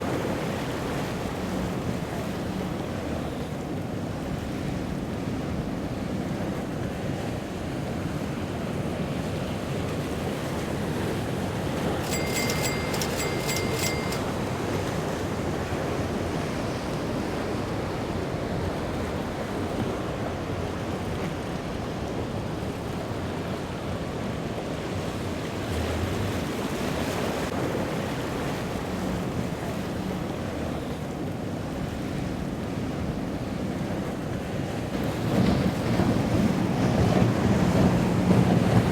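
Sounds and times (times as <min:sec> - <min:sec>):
boat engines rumbling: 0:00.0 - 0:06.9, 0:09.7 - 0:16.1, 0:21.6 - 0:38.9
waves surging and breaking: 0:16.1 - 0:38.9.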